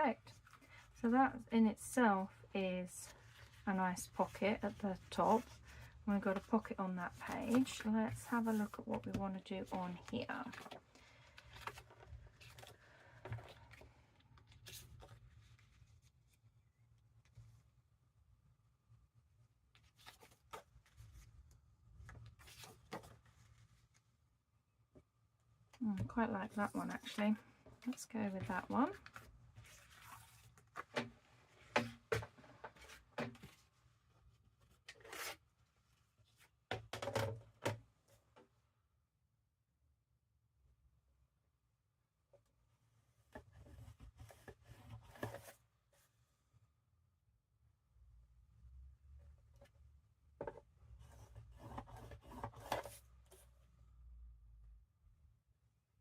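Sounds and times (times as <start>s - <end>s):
paper and card rustling: 3.1s - 16.4s.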